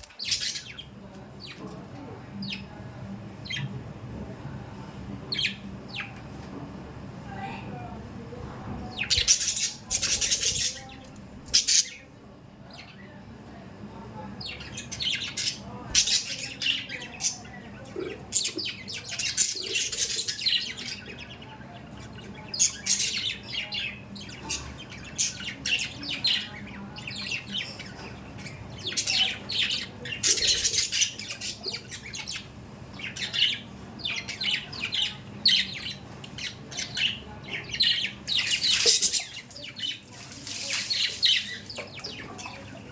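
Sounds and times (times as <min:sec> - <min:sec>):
budgerigars chirping and squawking: 0:00.0 - 0:01.8, 0:08.7 - 0:12.1, 0:14.4 - 0:42.9.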